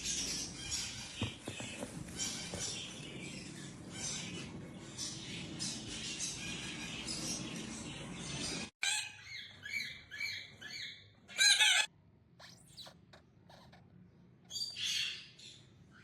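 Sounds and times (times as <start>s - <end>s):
parrot calling: 8.8s - 13.8s.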